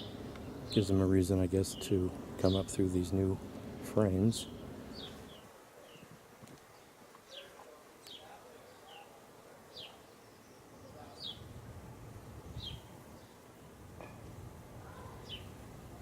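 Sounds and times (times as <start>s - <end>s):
small songbird chirping: 0.0s - 3.2s, 4.3s - 6.1s, 9.7s - 11.5s, 12.5s - 13.4s, 14.9s - 15.6s.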